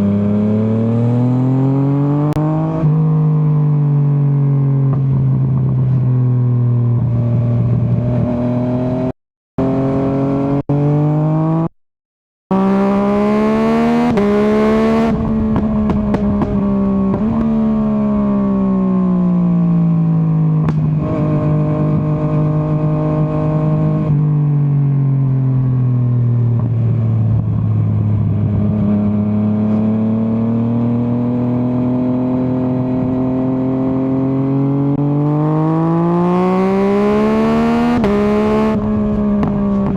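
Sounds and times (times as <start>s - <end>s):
motorcycle engine revving: 0.0s - 11.8s, 12.5s - 39.9s
exhaust crackles and pops: 15.1s - 17.6s, 20.6s - 21.2s, 37.9s - 39.9s.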